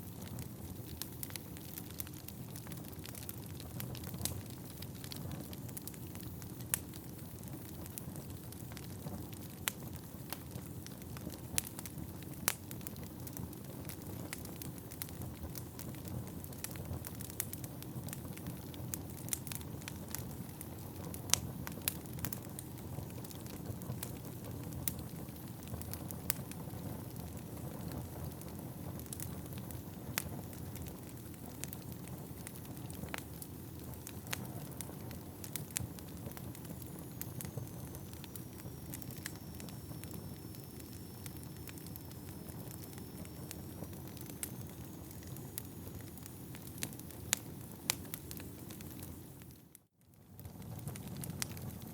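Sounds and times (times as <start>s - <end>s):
fireplace flames rumbling: 0.0s - 49.6s, 50.2s - 51.9s
logs crackling and popping: 0.0s - 51.9s
faint high whistle: 36.9s - 46.4s.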